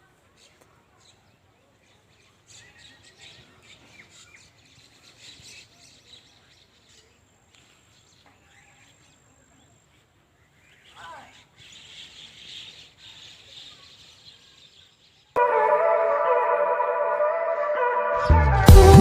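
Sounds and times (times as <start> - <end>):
small birds chirping: 0.2 - 15.4.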